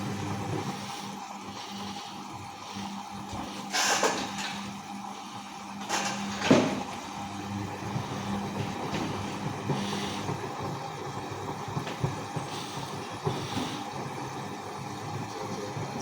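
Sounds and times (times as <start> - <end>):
washing machine motor hum: 0.0 - 16.0
washing machine drum noise: 5.9 - 16.0.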